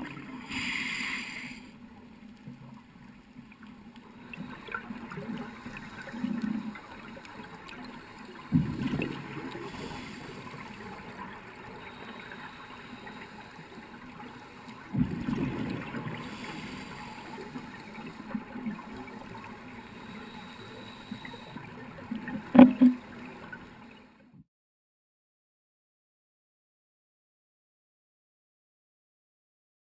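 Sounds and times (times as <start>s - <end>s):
steady water hiss: 0.0s - 24.2s
exhaled bubbles gurgling underwater: 2.4s - 24.0s.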